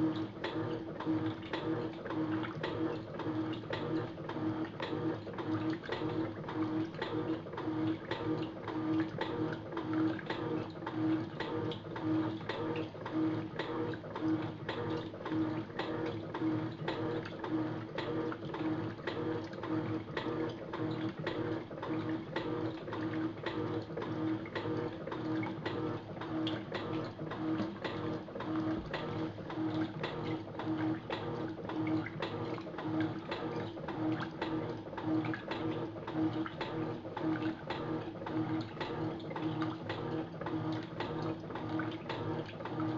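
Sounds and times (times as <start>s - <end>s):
washing machine motor hum: 0.0s - 42.9s
water sloshing: 18.1s - 42.9s.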